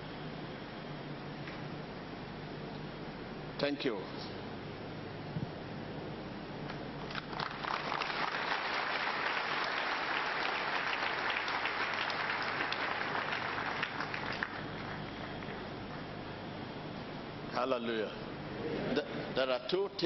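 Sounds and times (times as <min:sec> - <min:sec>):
congregation applauding: 0:07.1 - 0:16.2.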